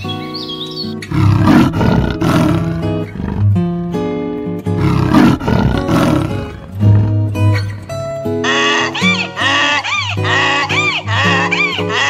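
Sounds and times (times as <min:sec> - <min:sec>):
background music with plucked guitar: 0:00.0 - 0:01.3, 0:02.4 - 0:12.0
big cat growling: 0:01.0 - 0:03.8, 0:04.7 - 0:07.7.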